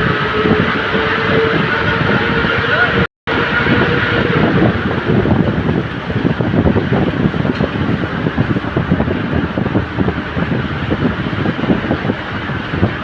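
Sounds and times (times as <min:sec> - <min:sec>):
wind buffeting microphone: 0:00.0 - 0:13.0
road vehicle rumble and hiss: 0:02.7 - 0:13.0.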